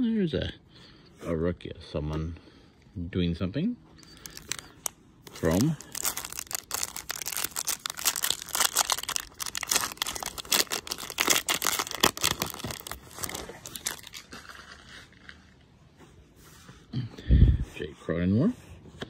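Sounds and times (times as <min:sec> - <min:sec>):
foil wrapper tearing and crinkling: 0:04.0 - 0:15.5.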